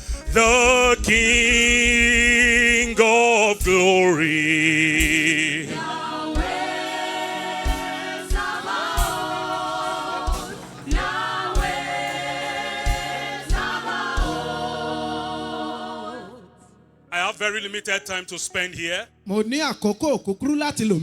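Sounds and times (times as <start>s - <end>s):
low drum hits: 0.0s - 4.2s
choir singing gospel song: 0.0s - 17.3s.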